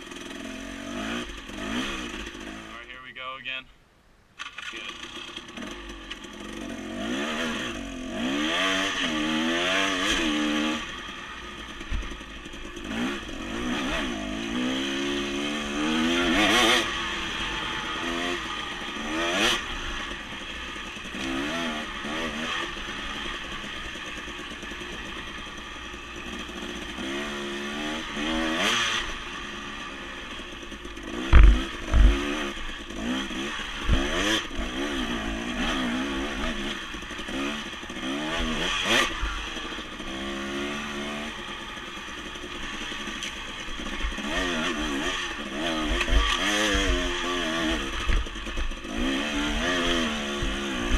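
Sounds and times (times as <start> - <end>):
dirt bike engine revving: 0.0 - 3.2, 4.4 - 50.9
heavy low thumps: 31.2 - 32.2.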